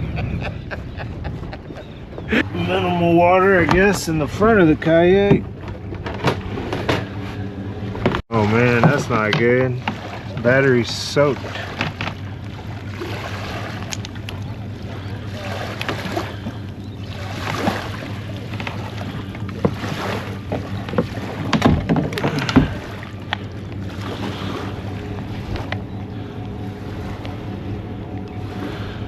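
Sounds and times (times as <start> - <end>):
wind on microphone: 0.0 - 9.4
steady low hum: 0.0 - 29.0
plastic kayak gear clattering: 20.5 - 23.4.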